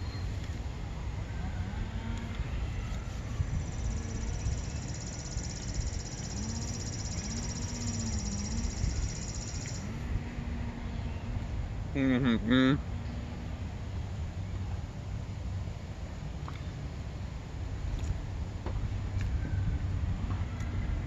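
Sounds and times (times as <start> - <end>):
wind rumble on microphone: 0.0 - 12.0, 12.8 - 21.0
bird high rapid trill: 3.6 - 9.9
man humming: 6.2 - 9.0.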